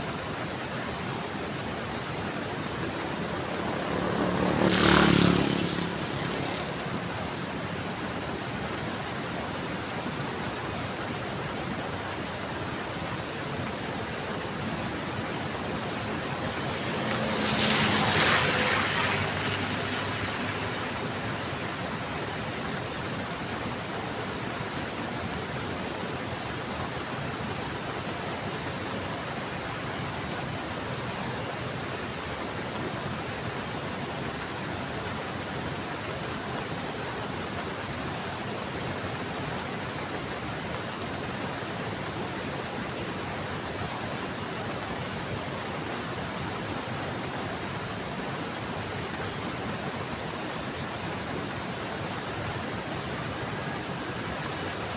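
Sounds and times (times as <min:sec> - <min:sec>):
heavy rain falling: 0:01.8 - 0:08.0, 0:14.6 - 0:22.8, 0:51.1 - 0:54.9.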